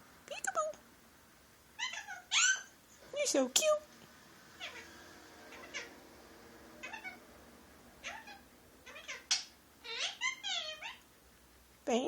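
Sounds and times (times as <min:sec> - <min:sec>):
parrot calls: 0:01.8 - 0:02.8, 0:04.6 - 0:11.1.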